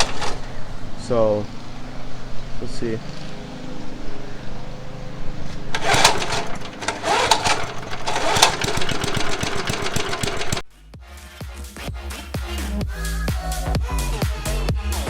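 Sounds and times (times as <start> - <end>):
lawn mower engine running: 0.0 - 10.6.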